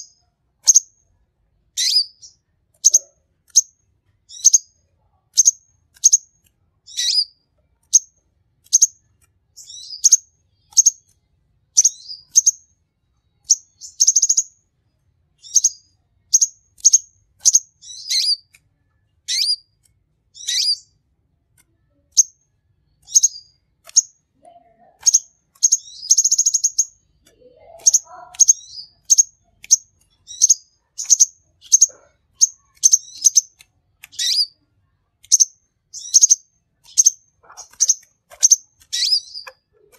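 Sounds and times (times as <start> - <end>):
bird high chirps: 0.0 - 1.0, 1.8 - 14.6, 15.4 - 18.6, 19.2 - 21.0, 21.8 - 34.6, 35.2 - 39.9
bird buzzy trills: 35.3 - 39.9.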